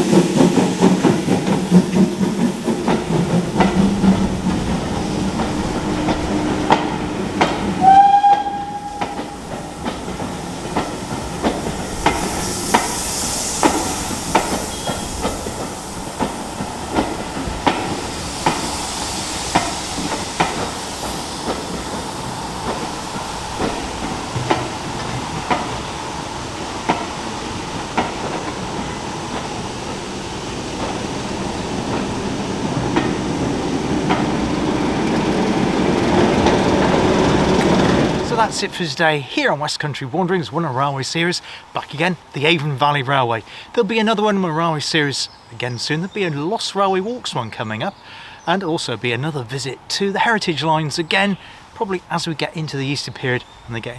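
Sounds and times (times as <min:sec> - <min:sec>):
steam hissing: 0:00.0 - 0:39.3
train wheels clicking over rail joints: 0:00.0 - 0:39.3
train whistle: 0:05.6 - 0:09.8.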